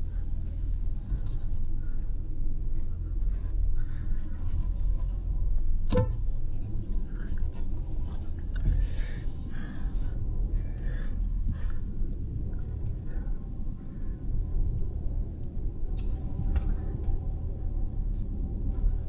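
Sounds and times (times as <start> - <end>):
car engine and road noise: 0.0 - 19.0
hiss: 9.2 - 10.1.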